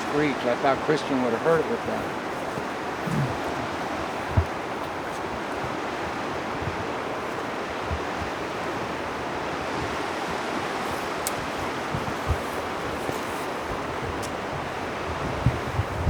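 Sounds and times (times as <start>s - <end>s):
river water rushing: 0.0s - 16.0s
soft low thumps: 1.5s - 8.8s.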